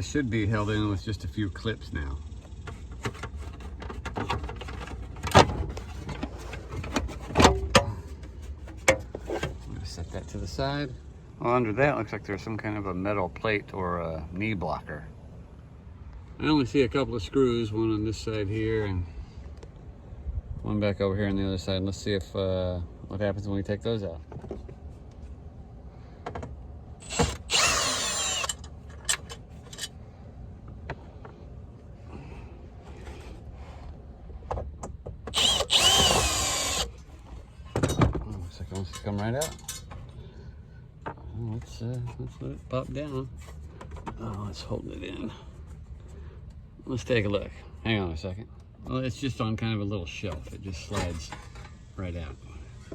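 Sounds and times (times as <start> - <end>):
power drill-driver running: 27.0 - 28.7, 35.3 - 37.0.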